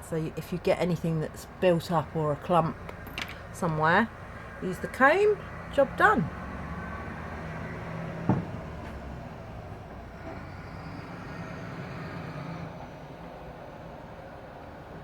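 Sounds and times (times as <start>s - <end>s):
short knock: 8.3s - 8.6s.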